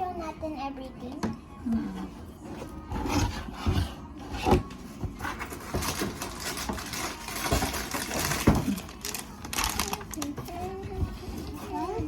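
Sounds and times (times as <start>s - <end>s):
packaging rustling: 5.3s - 10.7s.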